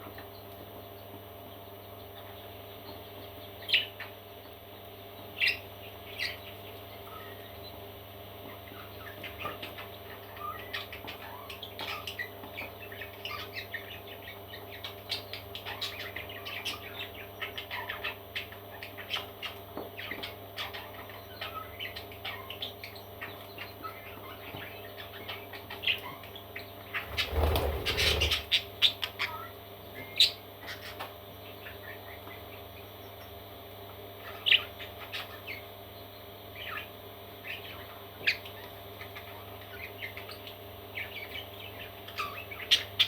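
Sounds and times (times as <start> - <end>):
parrot chicks cheeping: 0.0 - 43.0.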